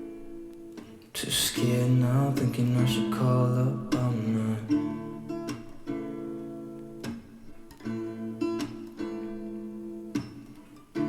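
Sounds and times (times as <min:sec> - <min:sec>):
acoustic guitar strumming: 0:00.0 - 0:11.0
person singing pop song: 0:01.1 - 0:05.6.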